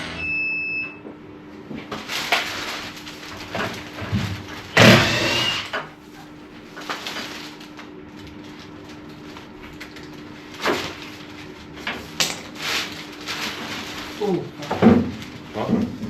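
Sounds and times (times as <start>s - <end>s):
steady low hum: 0.0s - 1.8s.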